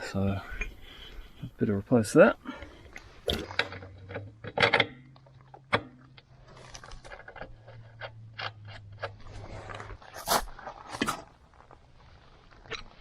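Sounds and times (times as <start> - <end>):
low steady hum: 0.0 - 12.9.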